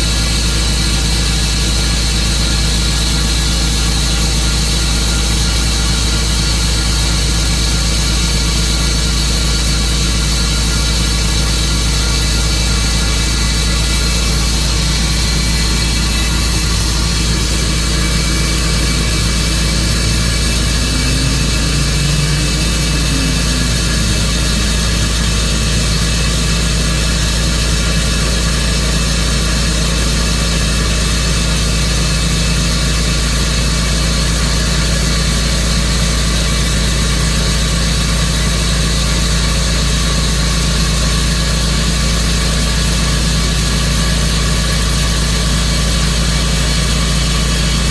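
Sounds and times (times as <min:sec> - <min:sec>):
sawmill engine running: 0:00.1 - 0:30.9.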